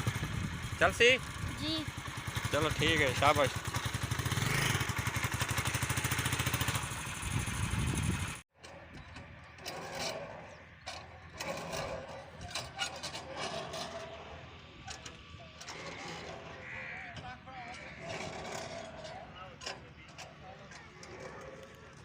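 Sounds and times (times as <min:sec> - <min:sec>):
motorcycle engine puttering: 0:00.0 - 0:22.0
faint outdoor sounds: 0:08.5 - 0:22.0.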